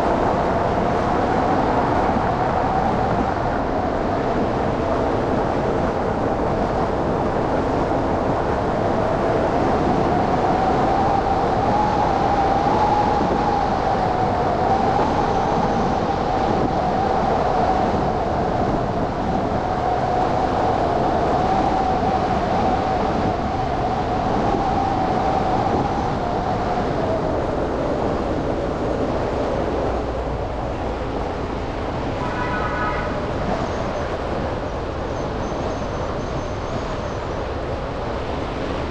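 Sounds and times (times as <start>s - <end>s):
road and traffic noise: 25.7s - 38.9s
brief high tone: 32.2s - 33.3s.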